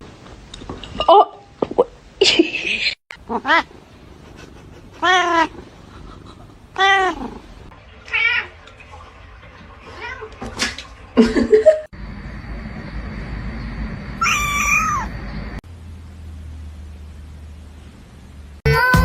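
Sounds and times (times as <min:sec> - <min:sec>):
cat meowing: 0:03.3 - 0:03.7, 0:05.0 - 0:05.6, 0:06.8 - 0:07.4, 0:14.2 - 0:15.1.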